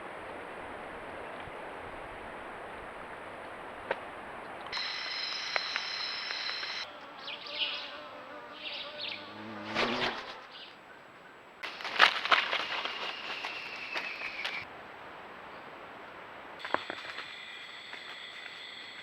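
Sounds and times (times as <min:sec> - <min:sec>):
clicks: 0:04.6 - 0:06.8
high insect buzz: 0:04.7 - 0:10.7
rustling: 0:09.6 - 0:10.6, 0:11.6 - 0:14.7.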